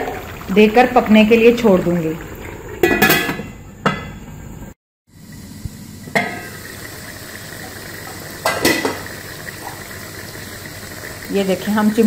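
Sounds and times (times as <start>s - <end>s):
food sizzling in oil: 5.1s - 12.0s.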